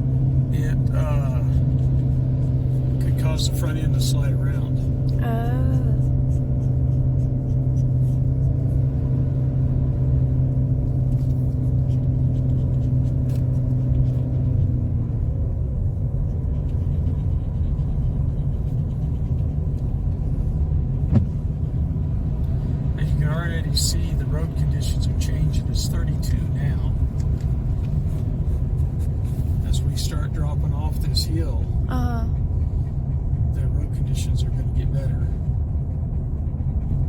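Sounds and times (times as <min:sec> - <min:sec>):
car engine hum: 0:00.0 - 0:37.0
tyre road rumble: 0:00.0 - 0:37.0.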